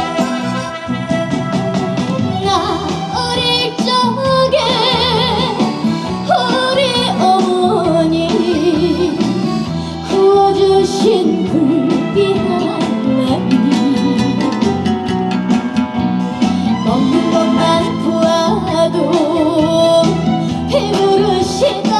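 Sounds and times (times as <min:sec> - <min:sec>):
band backing: 0:00.0 - 0:21.9
woman singing with vibrato: 0:00.0 - 0:21.9.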